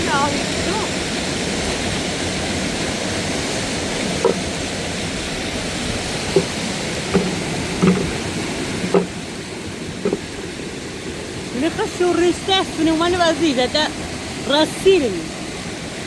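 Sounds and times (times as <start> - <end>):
waterfall rushing: 0.0 - 16.0
dull knocks: 4.0 - 4.6, 6.1 - 9.3, 10.0 - 10.3.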